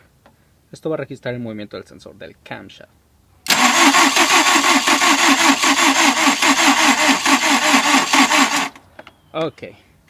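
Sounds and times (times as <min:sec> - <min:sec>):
engine cranking by starter motor: 0:03.5 - 0:08.8.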